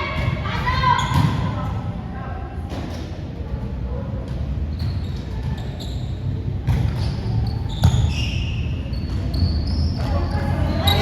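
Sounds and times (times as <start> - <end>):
shoe squeaks: 4.7 - 11.0
basketball bouncing on gym floor: 6.6 - 8.1.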